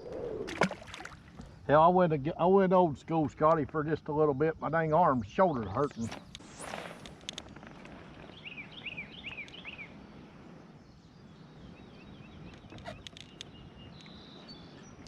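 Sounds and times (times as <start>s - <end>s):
outdoor background noise: 0.0s - 15.0s
bird chirping: 7.4s - 15.0s
sharp clicks: 12.5s - 14.2s.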